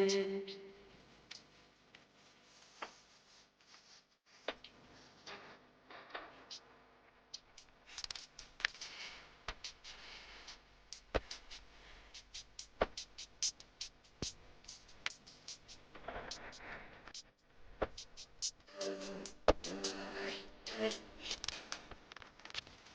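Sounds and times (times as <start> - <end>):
sharp percussive clicks: 7.3 - 20.0
background music: 17.9 - 21.8.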